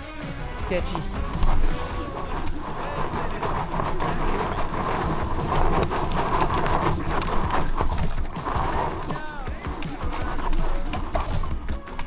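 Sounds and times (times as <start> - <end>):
tyres crunching over dirt and stones: 0.0 - 12.0
steady wind rumble: 0.2 - 12.0.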